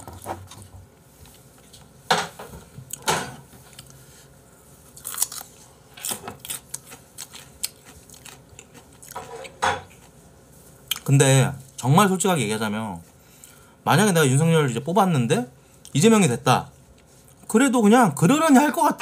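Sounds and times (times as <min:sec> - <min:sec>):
person crunching raw carrot: 0:04.9 - 0:09.2.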